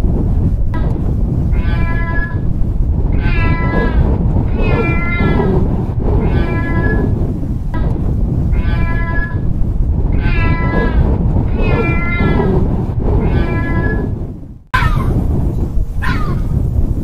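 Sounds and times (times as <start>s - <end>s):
cat meowing: 1.5s - 2.5s, 3.1s - 5.6s, 6.2s - 7.2s, 8.5s - 9.5s, 10.1s - 12.5s, 13.2s - 14.2s, 16.0s - 16.5s
high cry falling in pitch: 1.6s - 2.4s, 3.2s - 5.5s, 8.6s - 9.5s, 10.2s - 11.0s, 14.8s - 15.2s, 16.0s - 16.6s.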